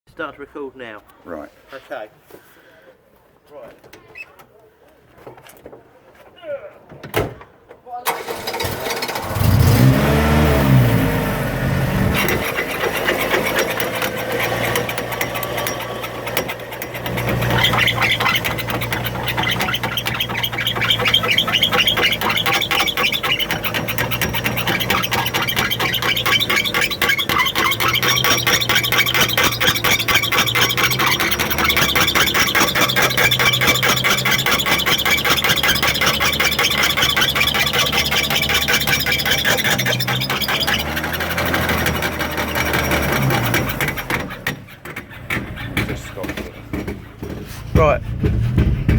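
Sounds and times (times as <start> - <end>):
car engine running: 9.1 - 44.5, 45.2 - 48.9
fast rattling tick: 12.2 - 48.9.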